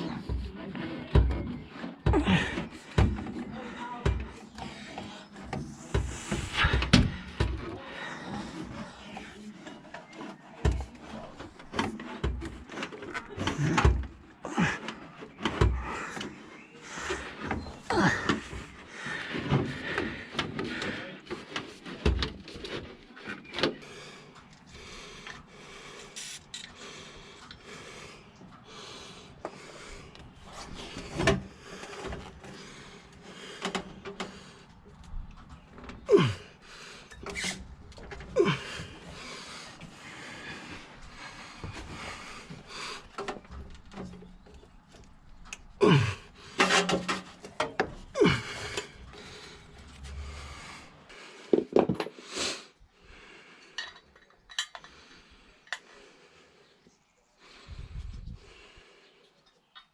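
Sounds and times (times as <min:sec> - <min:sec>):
metal clanks and scrapes: 0:46.5 - 0:48.0.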